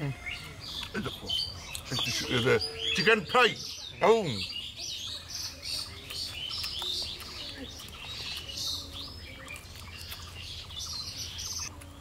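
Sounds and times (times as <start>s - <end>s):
birds chirping: 0.0s - 12.0s
faint chewing clicks: 0.4s - 2.2s, 5.1s - 12.0s.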